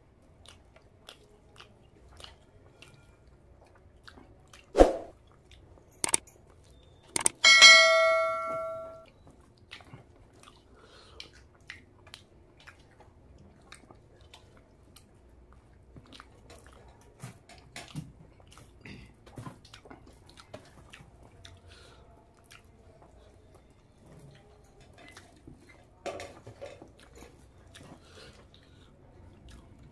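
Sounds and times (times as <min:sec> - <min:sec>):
mouth chewing with smacks: 0:00.0 - 0:07.3, 0:09.1 - 0:29.9
fingers squishing rice and curry: 0:00.1 - 0:05.8, 0:09.1 - 0:29.9
bell-like chime: 0:07.3 - 0:09.0.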